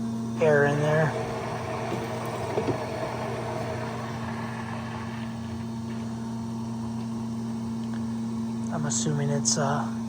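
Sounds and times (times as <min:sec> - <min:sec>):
electric pump humming: 0:00.0 - 0:10.0
flowing liquid hiss: 0:00.4 - 0:06.6.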